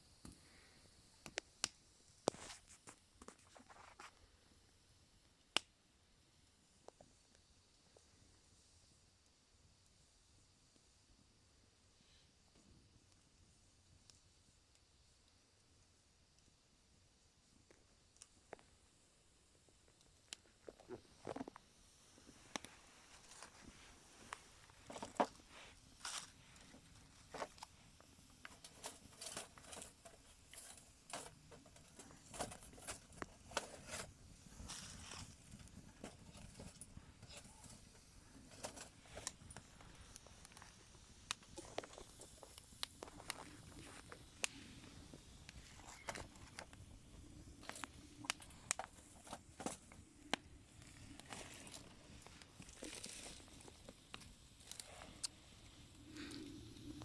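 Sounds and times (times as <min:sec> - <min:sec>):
faint low hiss: 0:00.0 - 0:57.0
wood fire crackling: 0:00.0 - 0:57.0.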